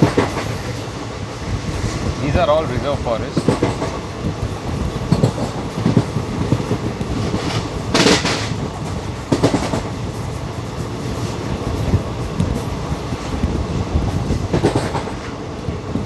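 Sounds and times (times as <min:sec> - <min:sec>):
train wheels rumbling on rail: 0:00.0 - 0:16.0
wheels knocking on rail joints: 0:00.0 - 0:16.0.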